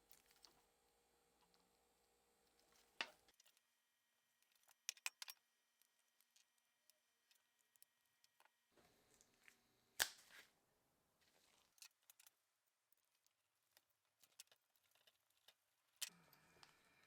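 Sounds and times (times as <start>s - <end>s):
small clicks and taps: 4.4s - 8.6s.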